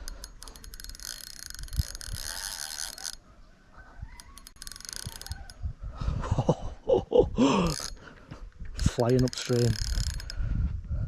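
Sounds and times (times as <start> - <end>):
fishing reel drag ratcheting: 0.0 - 3.2, 4.2 - 5.7, 7.6 - 8.1, 8.8 - 10.5.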